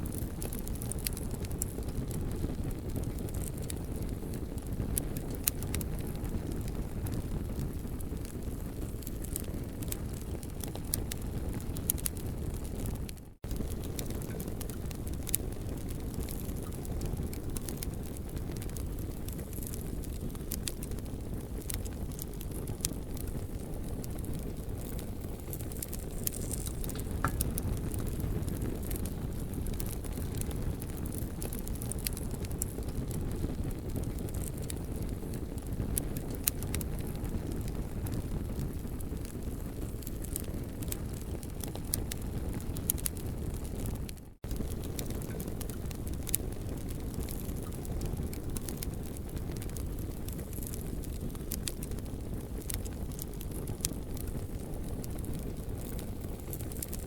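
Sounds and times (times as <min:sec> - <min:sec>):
campfire crackling and popping: 0:00.0 - 0:57.0
steady low rumble: 0:24.8 - 0:31.2.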